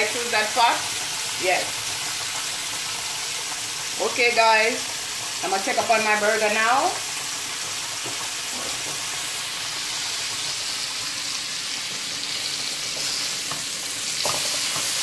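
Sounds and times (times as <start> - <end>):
burger patties sizzling: 0.0 - 15.0
chicken deep-frying in oil: 0.0 - 15.0
spatula scraping a skillet: 12.3 - 15.0.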